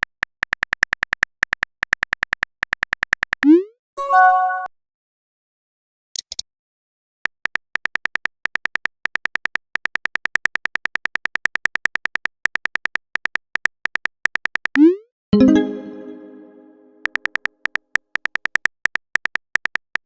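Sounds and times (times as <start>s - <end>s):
bright chime tone: 15.4s - 17.0s.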